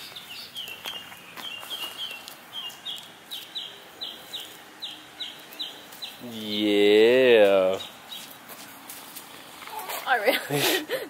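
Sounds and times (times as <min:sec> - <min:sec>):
bird chirping: 0:00.0 - 0:08.5.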